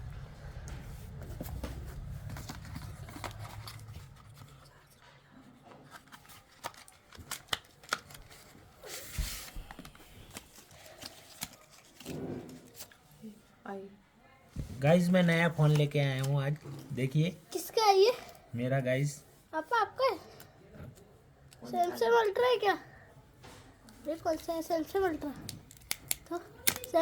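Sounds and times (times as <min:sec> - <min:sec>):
low rumble: 0:00.0 - 0:04.9
packaging rustle: 0:01.3 - 0:05.0, 0:05.8 - 0:13.0, 0:24.3 - 0:27.0.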